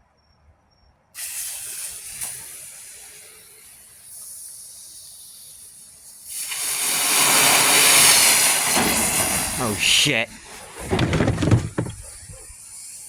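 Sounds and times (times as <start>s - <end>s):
firework fuse hissing: 1.2s - 10.8s.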